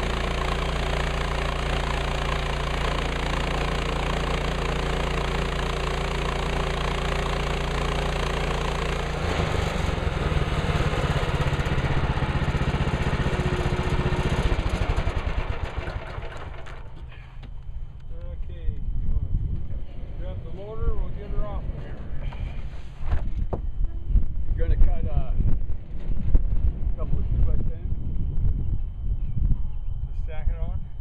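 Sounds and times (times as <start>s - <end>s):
sawmill gas engine running: 0.0s - 17.5s.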